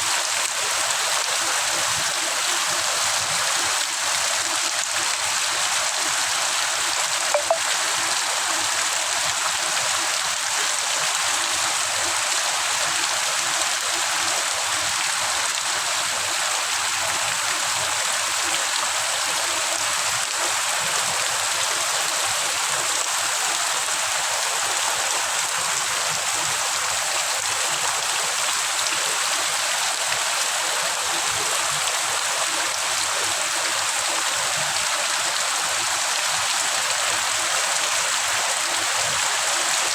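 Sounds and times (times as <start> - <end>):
brief click: 7.4 - 7.6.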